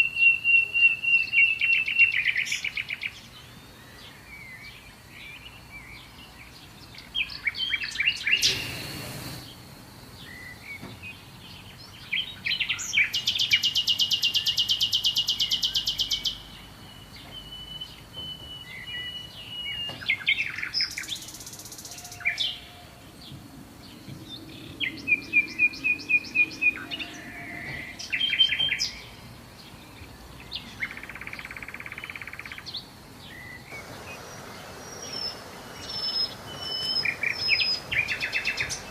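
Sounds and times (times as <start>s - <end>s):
bird chirps: 0.0s - 9.6s, 10.2s - 38.9s
songbirds singing and calling: 0.0s - 38.9s
lower bird trill: 5.4s - 9.6s, 11.6s - 38.9s
fast high bird trill: 33.8s - 38.9s.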